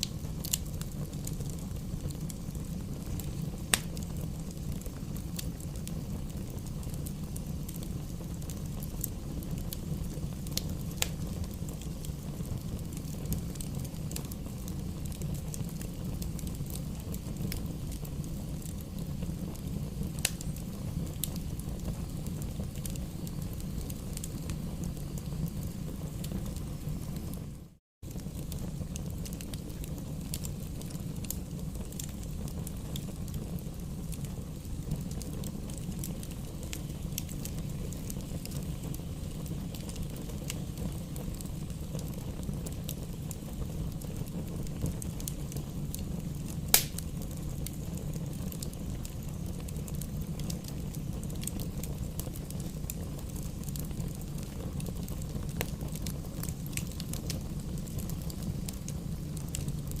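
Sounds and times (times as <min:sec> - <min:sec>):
campfire rumble and crackles: 0:00.0 - 1:00.0
loud sharp pop: 0:46.7 - 0:47.0.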